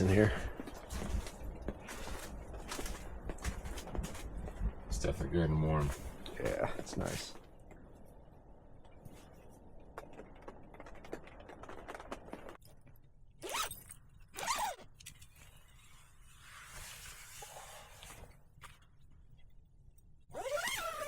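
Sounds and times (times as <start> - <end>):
rustling with small crackles: 0.0 - 20.3
zipper pulled: 13.4 - 14.9, 20.3 - 21.0.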